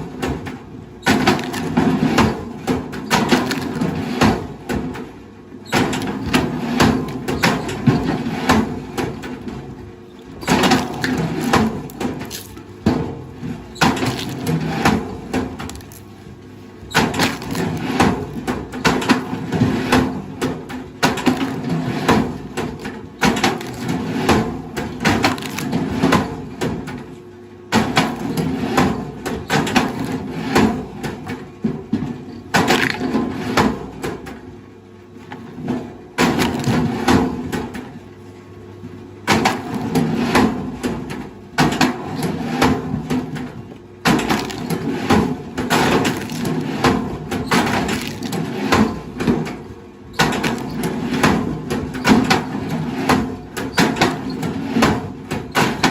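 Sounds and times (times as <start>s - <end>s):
wood cracking and splintering: 1.0s - 4.6s, 10.4s - 12.7s, 13.8s - 16.2s, 16.9s - 26.3s, 32.5s - 33.4s, 36.2s - 37.4s, 43.4s - 49.6s, 50.2s - 52.8s.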